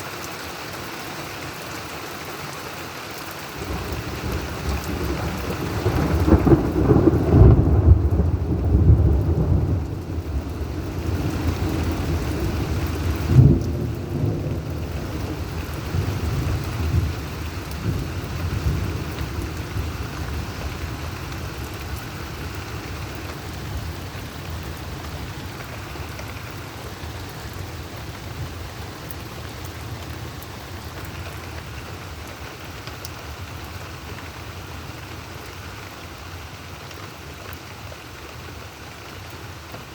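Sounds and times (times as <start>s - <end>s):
steady rain: 0.0s - 39.9s
thunder rumbling: 3.6s - 30.9s
sharp thunder clap: 13.2s - 17.1s.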